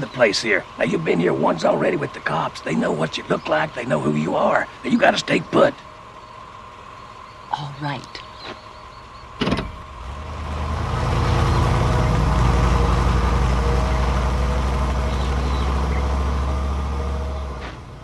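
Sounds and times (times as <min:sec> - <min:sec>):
car engine driving off: 0:08.3 - 0:18.0
sharp thump: 0:09.4 - 0:09.8.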